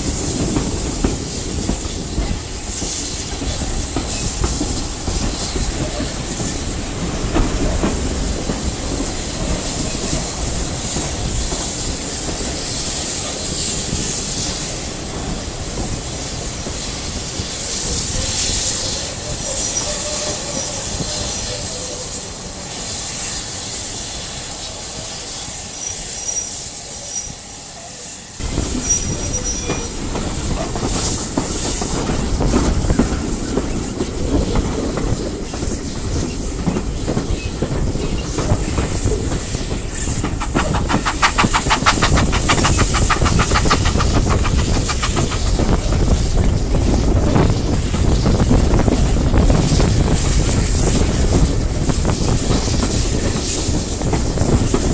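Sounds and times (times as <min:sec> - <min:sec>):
train wheels rumbling: 0:00.0 - 0:54.9
rushing air: 0:28.2 - 0:54.9
fast even wheel clatter: 0:38.4 - 0:46.2.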